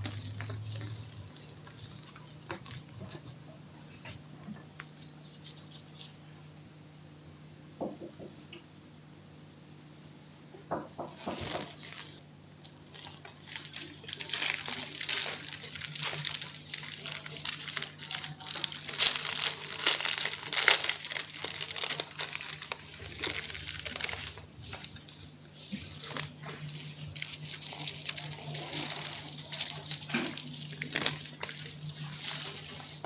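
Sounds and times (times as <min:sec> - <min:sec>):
chalk crunching and crumbling: 0:00.0 - 0:03.4, 0:12.9 - 0:33.0.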